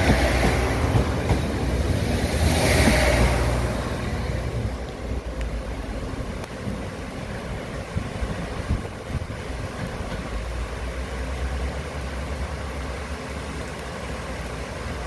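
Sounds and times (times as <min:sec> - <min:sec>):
heavy rain: 0:00.0 - 0:15.0
rushing water of waterfall: 0:00.0 - 0:15.0
wind gusts: 0:00.0 - 0:15.0.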